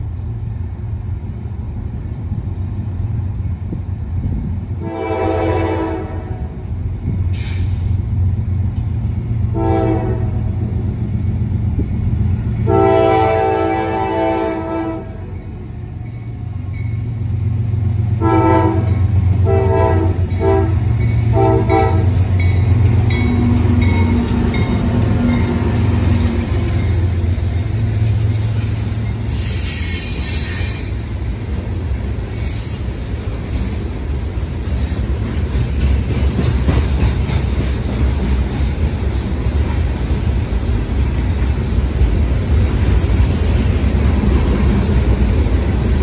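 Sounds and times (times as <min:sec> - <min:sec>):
locomotive horn blasts: 0:04.8 - 0:06.6, 0:09.5 - 0:10.6, 0:12.6 - 0:15.4, 0:18.2 - 0:22.3
freight cars clattering on rails: 0:33.7 - 0:46.0.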